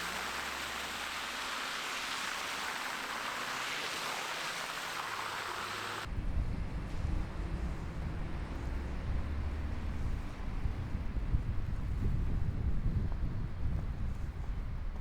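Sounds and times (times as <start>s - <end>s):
steady outdoor hiss: 0.0s - 6.1s
wind buffeting microphone: 6.1s - 15.0s.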